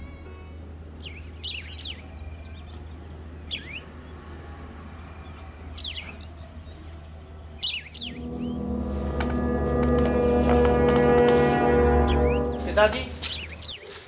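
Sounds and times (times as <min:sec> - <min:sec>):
small birds chirping: 0:00.6 - 0:08.5
steady low hum: 0:08.0 - 0:13.6.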